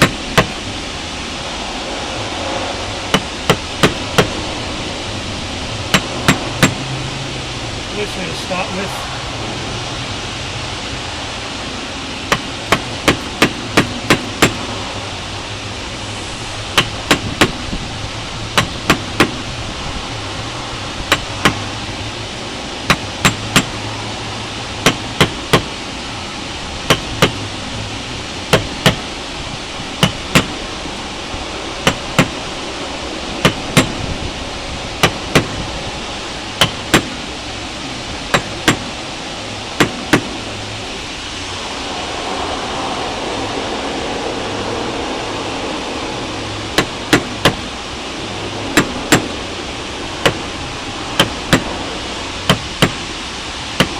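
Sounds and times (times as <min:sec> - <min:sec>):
mallet tapping caulking iron: 0:00.0 - 0:00.6, 0:03.1 - 0:04.4, 0:05.9 - 0:06.8, 0:12.3 - 0:14.6, 0:16.8 - 0:17.6, 0:18.6 - 0:19.4, 0:21.1 - 0:21.7, 0:22.9 - 0:23.8, 0:24.8 - 0:25.7, 0:26.9 - 0:27.4, 0:28.5 - 0:29.1, 0:30.0 - 0:30.6, 0:31.8 - 0:32.4, 0:33.4 - 0:34.0, 0:35.0 - 0:35.6, 0:36.6 - 0:37.2, 0:38.3 - 0:39.0, 0:39.8 - 0:40.4, 0:46.8 - 0:47.6, 0:48.8 - 0:49.4, 0:50.2 - 0:50.5, 0:51.2 - 0:51.8, 0:52.4 - 0:53.0
steady background hiss: 0:00.0 - 0:53.9.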